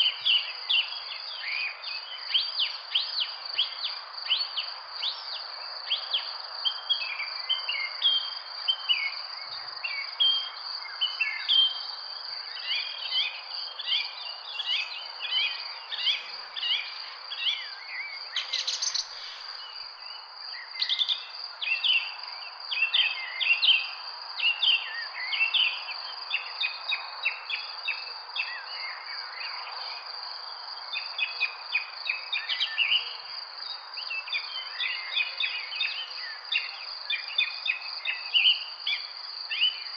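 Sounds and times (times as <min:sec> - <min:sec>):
small birds chirping: 0:00.0 - 0:29.5
outdoor background hiss: 0:00.0 - 0:39.9
high insect drone: 0:00.2 - 0:39.9.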